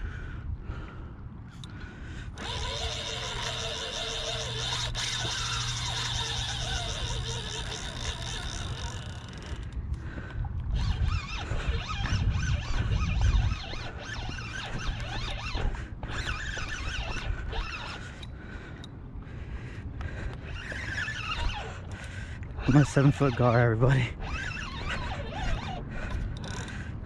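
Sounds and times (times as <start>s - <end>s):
close rustling and scraping: 2.3s - 9.8s, 10.7s - 18.3s, 20.3s - 26.9s.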